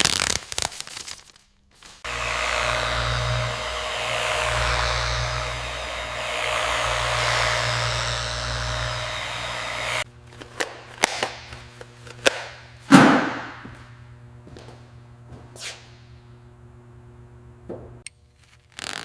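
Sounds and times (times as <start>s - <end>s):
power tool whirring: 2.0s - 10.1s.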